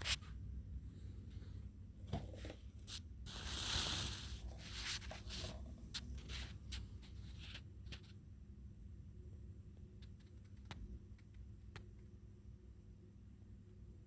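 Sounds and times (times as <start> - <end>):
rustling: 3.3 - 8.1
light clicks and scrapes: 4.0 - 8.2, 10.0 - 11.9.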